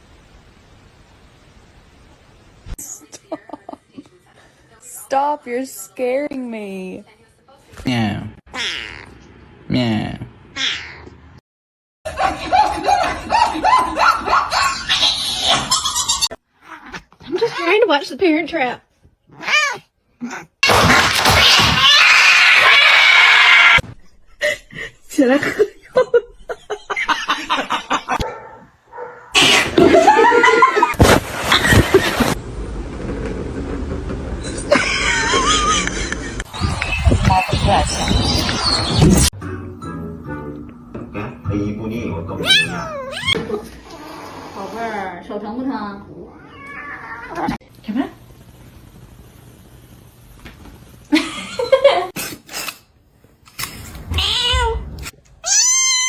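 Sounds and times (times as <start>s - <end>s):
cat meowing: 8.5s - 9.2s, 16.6s - 17.7s, 19.3s - 20.6s, 42.4s - 43.4s, 46.3s - 47.6s, 54.0s - 56.0s
pet animal crying: 8.5s - 9.2s, 10.6s - 11.1s, 16.6s - 17.8s, 19.3s - 20.6s, 21.3s - 23.8s, 42.4s - 44.6s, 46.3s - 47.6s, 54.1s - 56.0s.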